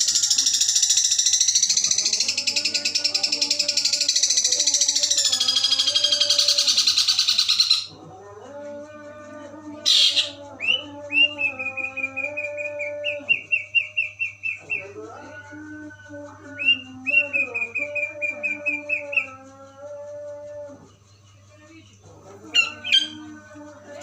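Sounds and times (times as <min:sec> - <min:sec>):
bird singing rapid high chirps: 0:00.0 - 0:07.9, 0:09.8 - 0:15.0, 0:16.5 - 0:19.4, 0:22.4 - 0:23.4
steady low hum: 0:00.0 - 0:24.0.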